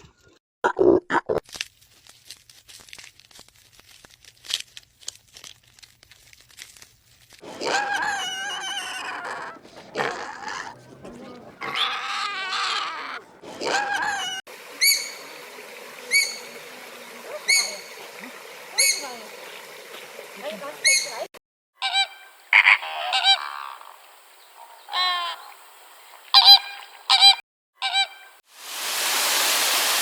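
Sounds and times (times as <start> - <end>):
faint animal clicks: 7.4 - 14.4
high wavering animal cries: 7.4 - 15.1, 21.8 - 23.9.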